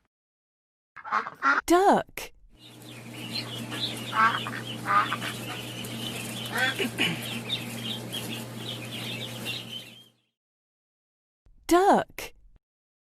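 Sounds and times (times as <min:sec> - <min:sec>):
ducks quacking: 0:01.0 - 0:01.6, 0:02.6 - 0:10.0
high peeping: 0:02.6 - 0:10.2
steady low hum: 0:02.6 - 0:10.2.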